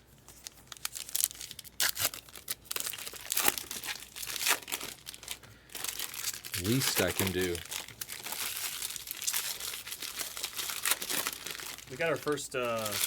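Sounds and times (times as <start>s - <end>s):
foil packs tearing and crinkling: 0.3s - 13.0s.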